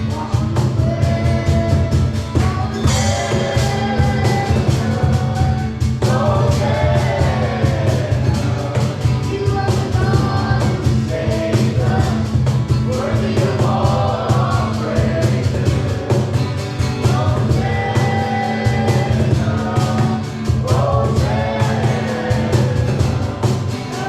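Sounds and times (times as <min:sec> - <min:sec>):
person singing: 0:00.0 - 0:12.3
live band playing: 0:00.0 - 0:24.0.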